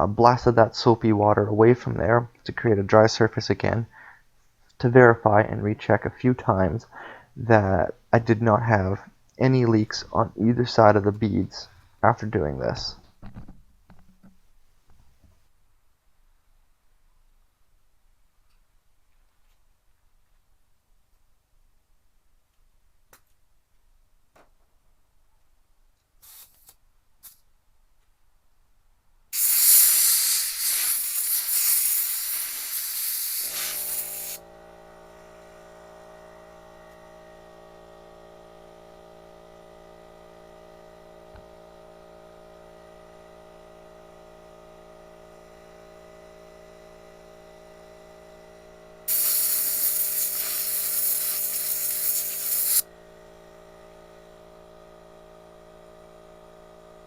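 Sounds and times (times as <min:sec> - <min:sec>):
compressed air blasts: 0:26.2 - 0:27.4, 0:29.4 - 0:34.4, 0:49.1 - 0:52.8
air compressor motor humming: 0:29.4 - 0:57.0.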